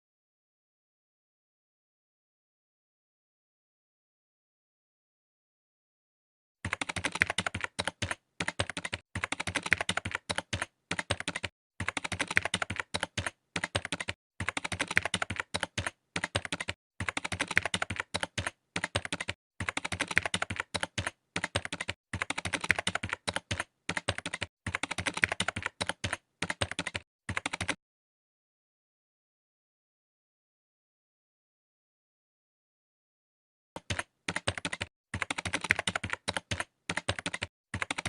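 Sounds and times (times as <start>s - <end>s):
keyboard typing clicks: 6.6s - 27.8s, 33.8s - 38.0s.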